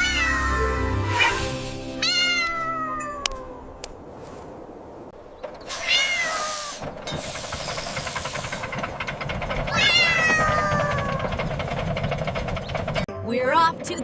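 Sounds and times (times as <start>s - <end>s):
cat meowing: 0.0s - 1.4s, 2.0s - 3.7s, 5.7s - 6.8s, 9.7s - 11.3s.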